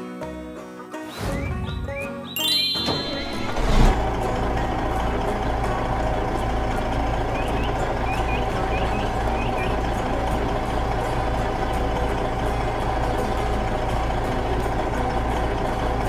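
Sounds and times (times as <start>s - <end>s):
faint high chirps: 1.6s - 5.6s, 7.1s - 14.5s
heavy vehicle engine idling: 2.5s - 16.0s.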